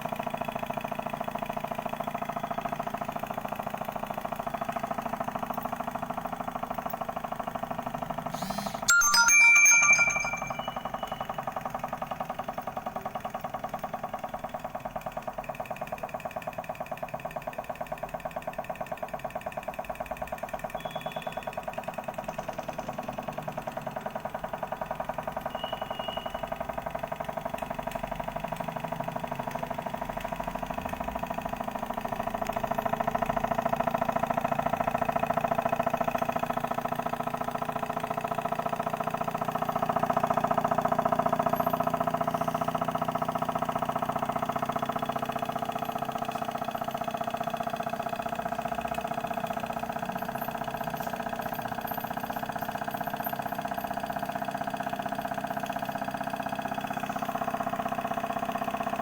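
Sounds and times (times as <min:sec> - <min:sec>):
model engine mechanical clatter: 0:44.1 - 0:59.0.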